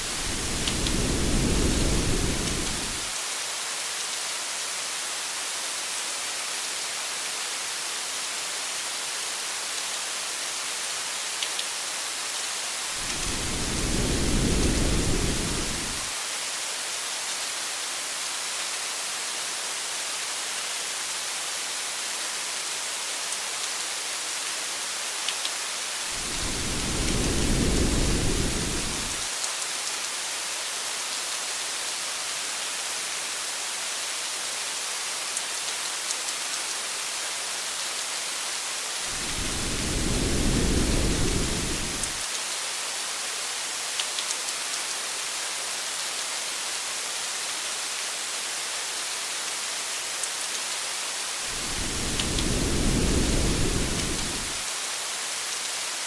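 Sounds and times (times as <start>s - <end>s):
thunder rolling: 0.0s - 3.1s, 13.0s - 16.1s, 26.2s - 29.3s, 39.1s - 42.2s, 51.5s - 54.6s
steady rain hiss: 0.0s - 56.0s.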